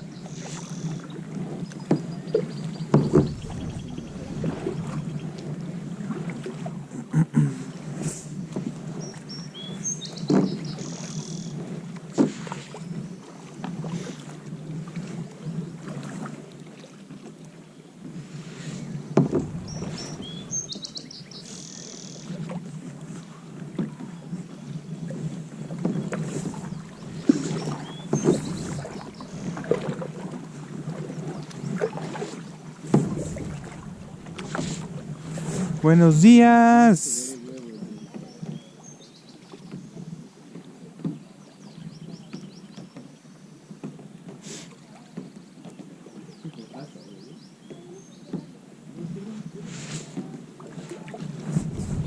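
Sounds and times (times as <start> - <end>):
water and wind noise: 0.0 - 52.0
paddle strokes splashing: 0.2 - 7.0, 10.2 - 38.6, 49.7 - 52.0
sharp knocks on kayak: 2.9 - 5.2, 19.2 - 20.8, 25.9 - 29.4, 32.9 - 35.8
bird chirping: 19.4 - 22.2, 26.6 - 29.5.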